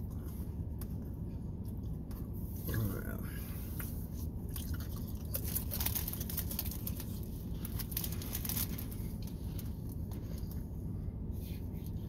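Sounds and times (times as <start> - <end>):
steady low hum: 0.0 - 12.0
cracker crunching: 4.4 - 10.6.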